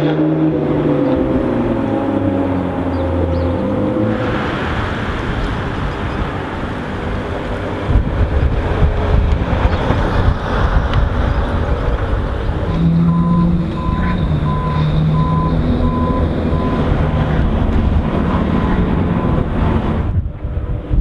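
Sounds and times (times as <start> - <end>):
car engine rumbling: 0.0 - 21.0
short high beeps: 13.1 - 16.8.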